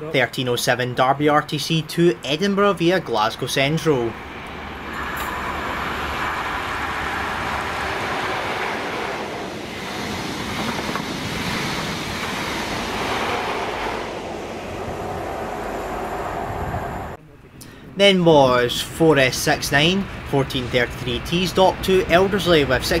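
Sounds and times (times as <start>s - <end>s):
diesel train engine: 1.4s - 23.0s
wheels on rail: 4.0s - 17.2s.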